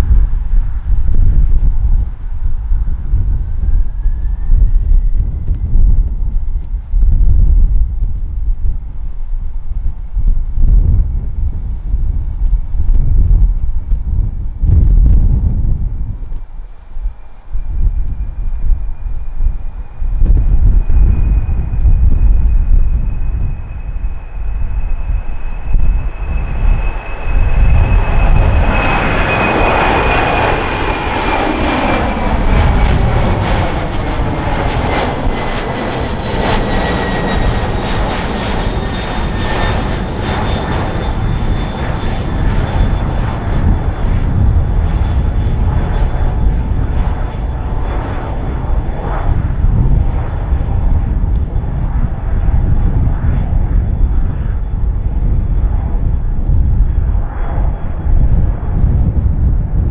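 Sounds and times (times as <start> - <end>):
jet engines roaring with whine: 0.0 - 59.9.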